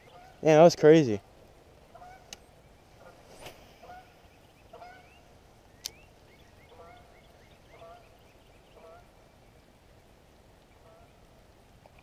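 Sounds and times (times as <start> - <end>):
low multi-tone bird call: 2.0 - 9.6.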